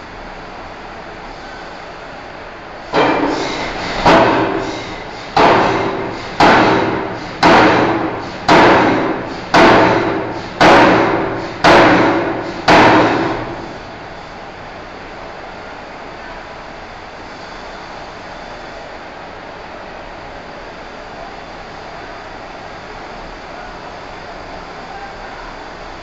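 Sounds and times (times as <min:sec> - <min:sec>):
forging hammer striking steel: 0:03.0 - 0:13.8.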